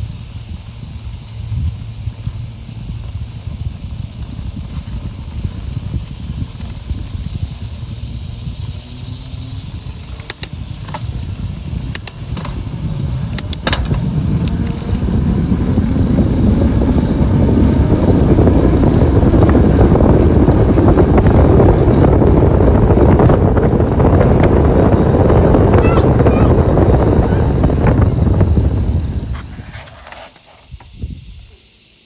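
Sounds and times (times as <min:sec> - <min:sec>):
wind buffeting microphone: 0:00.0 - 0:29.8, 0:30.7 - 0:31.8
sharp clicks: 0:10.2 - 0:11.0.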